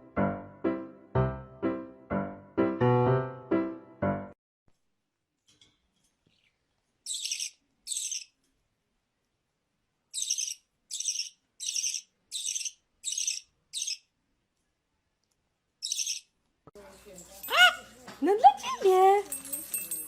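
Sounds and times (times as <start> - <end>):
bird giving scratchy chirps: 6.3 - 8.4, 10.2 - 14.1, 15.8 - 16.3.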